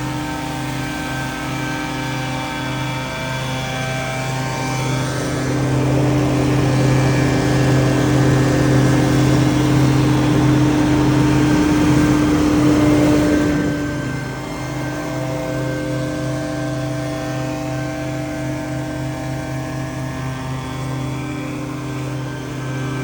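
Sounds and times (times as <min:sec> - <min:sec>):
debris blower engine hum: 0:05.0 - 0:23.0.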